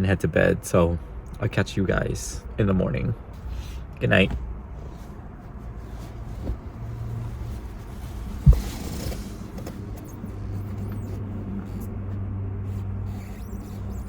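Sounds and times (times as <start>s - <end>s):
vehicle humming: 0.0s - 14.0s
sharp thump: 8.4s - 9.1s.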